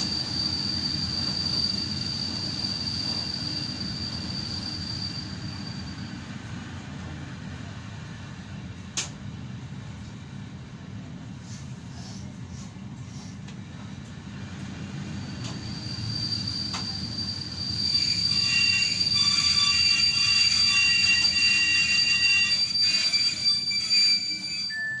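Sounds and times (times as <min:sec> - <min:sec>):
high-pitched wheel squeal: 0:00.0 - 0:06.2, 0:15.2 - 0:25.0
train rumbling: 0:00.0 - 0:25.0.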